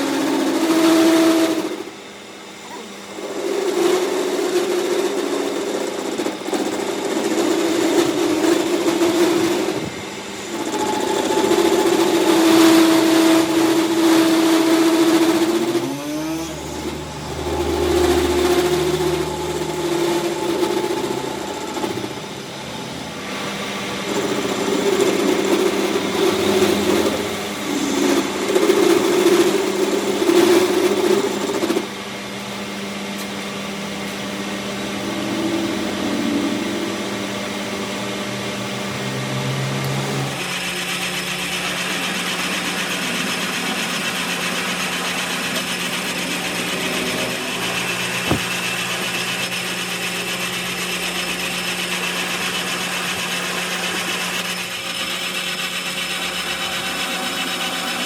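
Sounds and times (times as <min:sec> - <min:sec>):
power tool working metal: 0:00.0 - 0:58.0.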